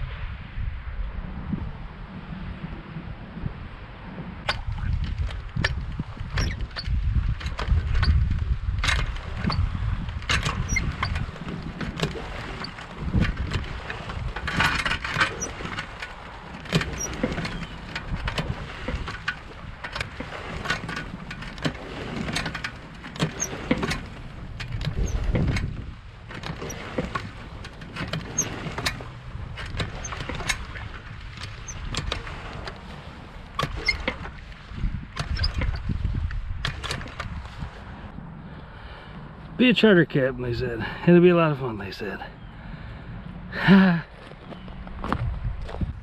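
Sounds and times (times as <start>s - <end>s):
low rumble: 0.0s - 11.7s
irregular clicks and knocks: 4.5s - 32.8s, 35.2s - 37.3s.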